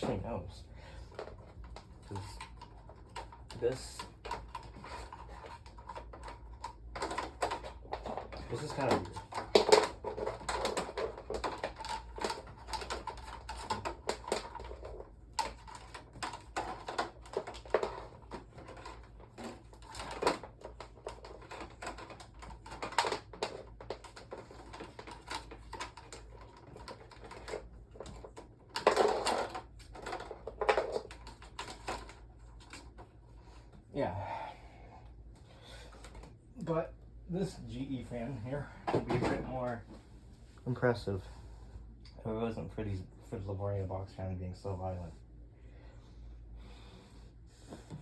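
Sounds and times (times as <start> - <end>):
fan being handled clicks and knocks: 1.1 - 33.1.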